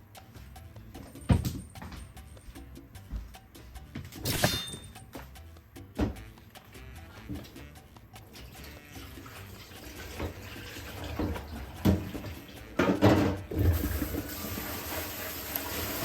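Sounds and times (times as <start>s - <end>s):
objects knocking and clunking: 1.0s - 3.3s, 3.9s - 6.4s, 7.2s - 8.7s, 9.9s - 14.2s
tap water running: 8.2s - 16.0s.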